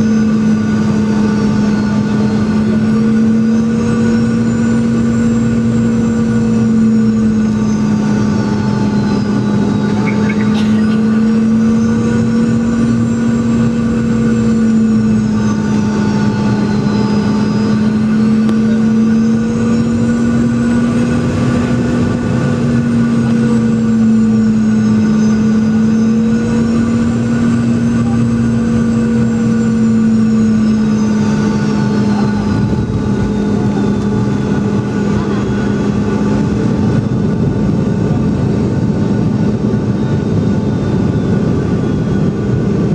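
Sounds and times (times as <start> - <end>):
jet engines humming and whining: 0.0 - 42.9.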